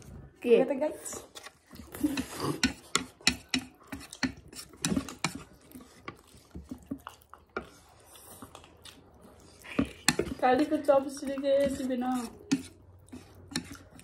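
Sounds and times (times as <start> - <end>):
utensils tapping against a bowl: 2.0 - 7.7, 9.7 - 14.0.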